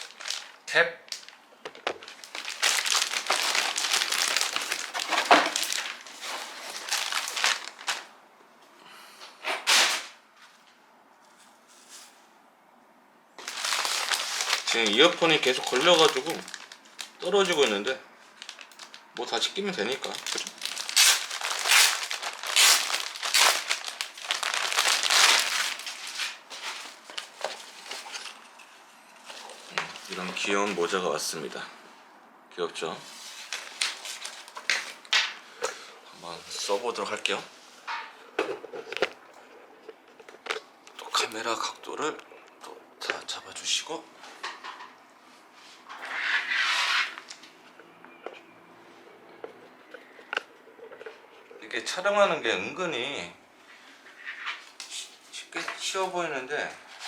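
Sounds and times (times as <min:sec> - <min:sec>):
packaging crinkling and rustling: 0:00.0 - 0:08.1, 0:13.4 - 0:28.6, 0:29.2 - 0:31.0, 0:33.1 - 0:35.4, 0:38.5 - 0:41.4.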